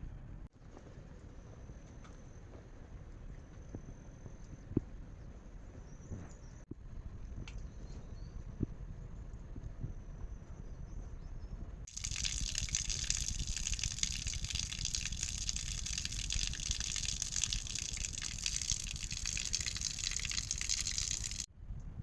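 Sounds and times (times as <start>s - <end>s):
rushing water hiss: 11.9s - 21.5s.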